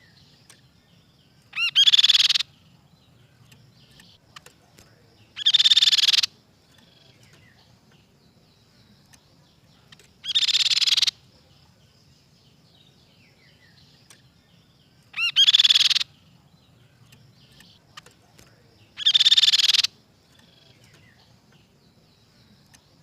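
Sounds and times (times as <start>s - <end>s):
faint high twittering: 0.0s - 23.0s
bird calling loudly: 1.4s - 2.6s, 5.2s - 7.5s, 10.2s - 11.2s, 15.0s - 16.2s, 18.8s - 21.4s.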